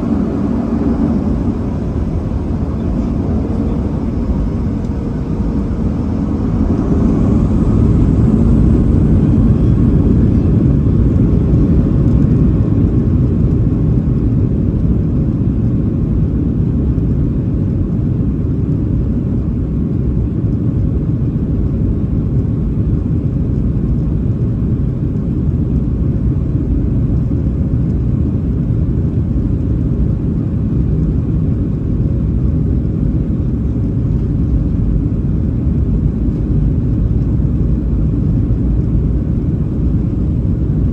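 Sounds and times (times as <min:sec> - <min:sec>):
jet engines rumbling in cabin: 0:00.0 - 0:40.9.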